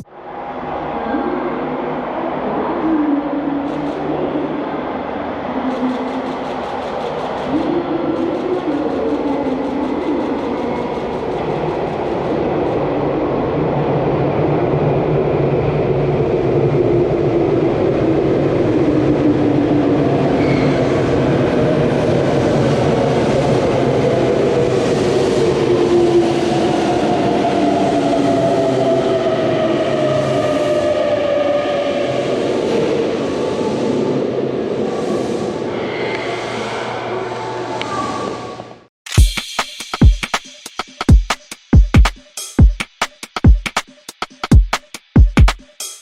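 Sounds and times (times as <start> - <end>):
train wheels rumbling on rail: 3.6 - 37.0.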